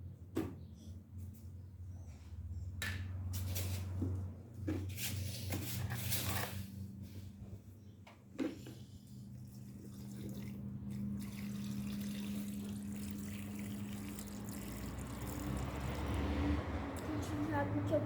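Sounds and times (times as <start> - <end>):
water running into tub: 9.7 - 16.4.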